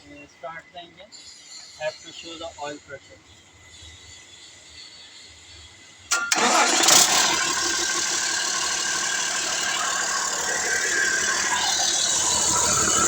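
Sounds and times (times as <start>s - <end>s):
diesel engine cranking and idling: 6.1s - 13.0s.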